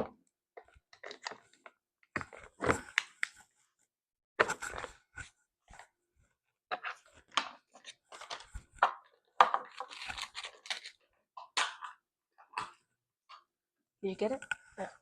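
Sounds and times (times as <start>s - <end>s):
plastic wrapping tearing and crinkling: 9.6s - 11.0s.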